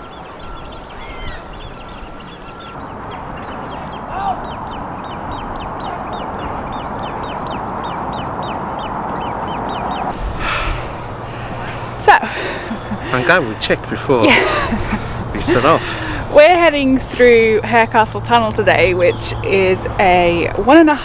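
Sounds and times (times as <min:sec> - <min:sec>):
high falling bird chirps: 0:00.0 - 0:12.0
lower rising bird call: 0:00.0 - 0:14.0
steady background rush: 0:01.5 - 0:21.0.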